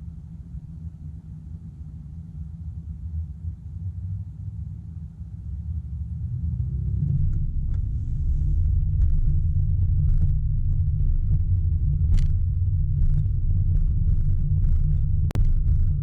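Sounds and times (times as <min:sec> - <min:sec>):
road and wind noise from moving car: 0:05.4 - 0:16.0.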